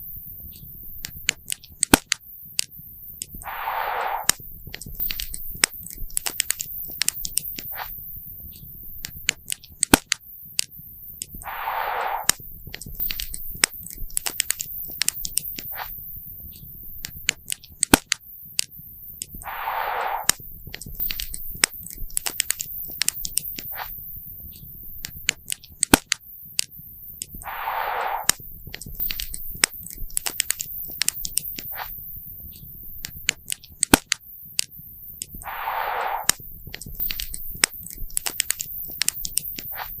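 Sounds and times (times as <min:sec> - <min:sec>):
short rushing noise: 0:03.4 - 0:04.4, 0:11.4 - 0:12.4, 0:19.4 - 0:20.4, 0:27.4 - 0:28.4, 0:35.4 - 0:36.4.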